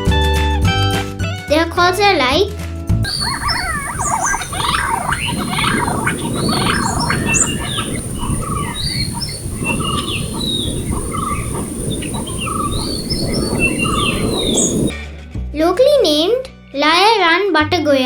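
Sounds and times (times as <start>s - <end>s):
low background noise: 3.1s - 14.9s
other birds chirping: 3.1s - 14.9s
pigeon whistled notes: 3.1s - 14.9s.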